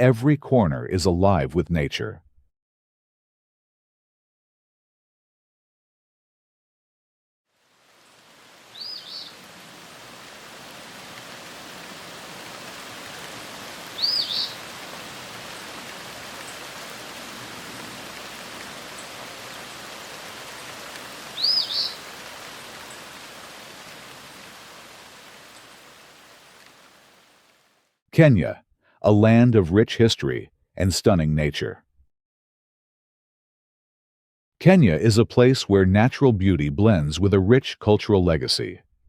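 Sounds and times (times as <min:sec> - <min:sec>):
rain-like hiss of ambience: 0:07.5 - 0:28.0
bird calling: 0:08.7 - 0:09.5, 0:13.0 - 0:17.4, 0:18.0 - 0:23.3.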